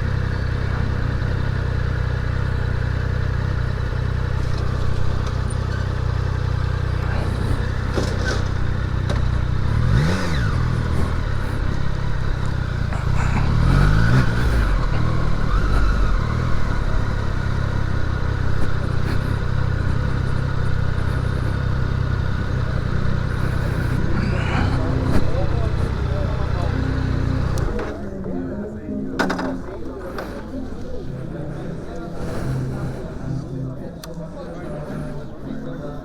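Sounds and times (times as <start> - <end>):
motorcycle engine revving: 0.0 - 28.2.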